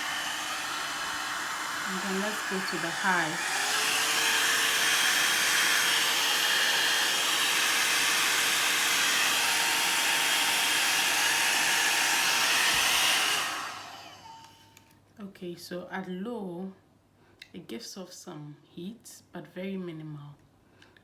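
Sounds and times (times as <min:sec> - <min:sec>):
blow dryer brush running: 0:00.0 - 0:14.6.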